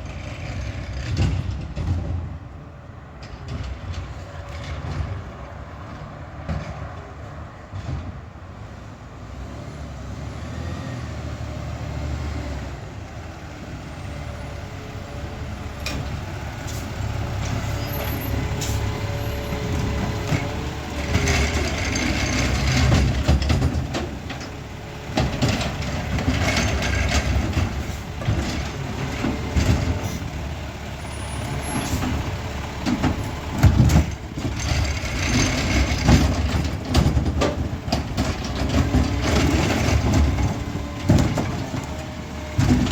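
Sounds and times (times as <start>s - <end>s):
diesel truck engine rumble: 0.0s - 42.9s
air brake hiss: 18.5s - 18.9s.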